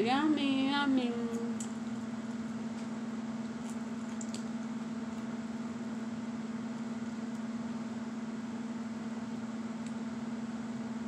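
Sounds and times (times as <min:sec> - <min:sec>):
steady low hum: 0:00.0 - 0:11.0
toast crunching while chewed: 0:03.5 - 0:05.3.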